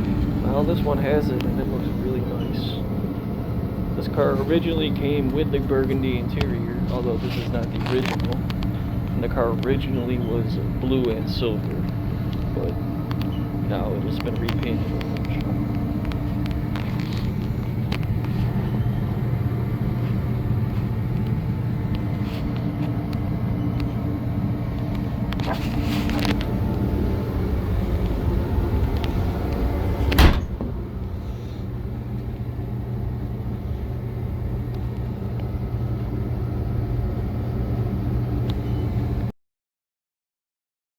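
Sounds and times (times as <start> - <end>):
car engine idling: 0.0 - 36.9
sharp thump: 30.1 - 30.8.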